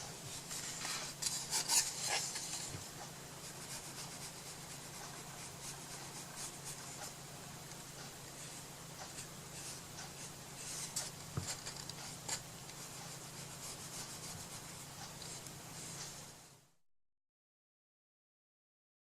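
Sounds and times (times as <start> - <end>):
scratchy rubbing on paper and wood: 0.2 - 7.2, 8.1 - 16.3.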